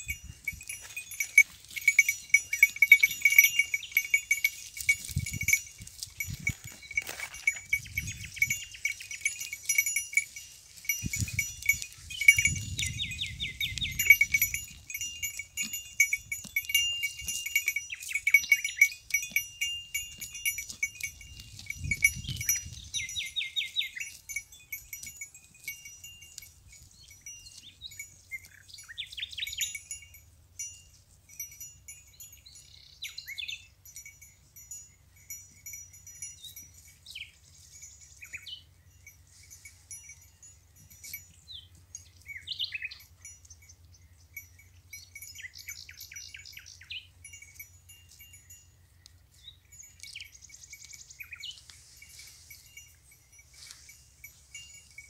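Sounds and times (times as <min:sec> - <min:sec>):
wind buffeting microphone: 0:00.0 - 0:00.9, 0:04.7 - 0:09.4, 0:10.7 - 0:17.6, 0:19.9 - 0:23.7
goat bells tinkling: 0:00.0 - 0:55.0.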